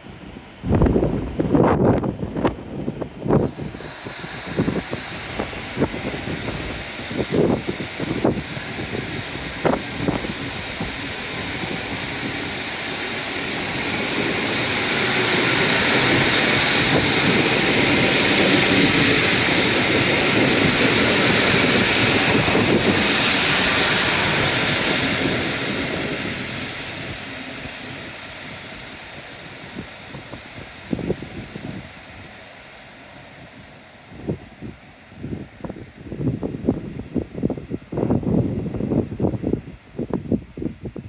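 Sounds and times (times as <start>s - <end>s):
train passing rumble: 0.0s - 40.2s.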